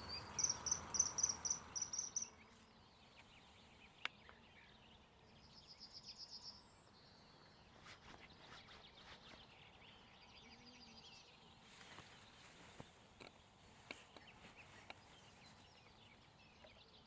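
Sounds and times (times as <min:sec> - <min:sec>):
high-pitched bird trills: 0:00.0 - 0:02.3
bird chirps: 0:00.0 - 0:11.5.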